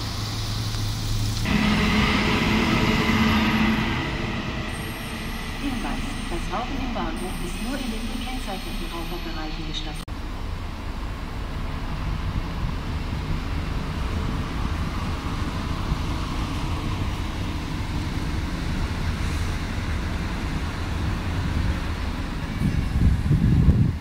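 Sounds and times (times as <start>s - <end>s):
train wheels rumbling: 0.0s - 10.1s
wind buffeting microphone: 22.6s - 24.0s.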